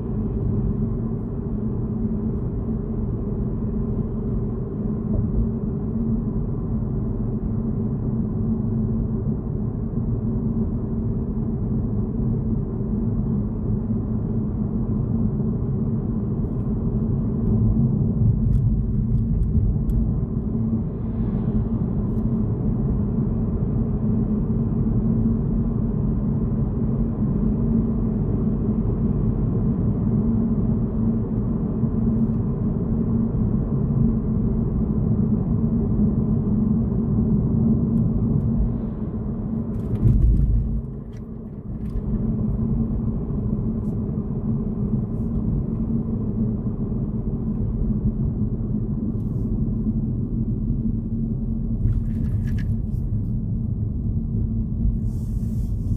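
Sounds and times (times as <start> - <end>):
car tyre and engine rumble: 0.0 - 55.9
low thump: 39.9 - 41.0.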